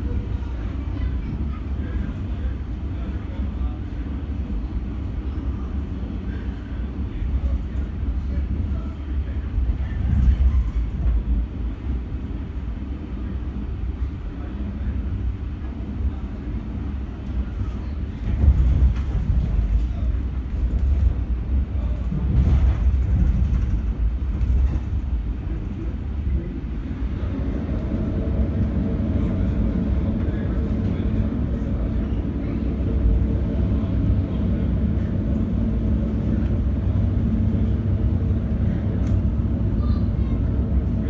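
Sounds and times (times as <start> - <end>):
steady hum: 0.0 - 41.0
train wheels rumbling on rail: 0.0 - 41.0.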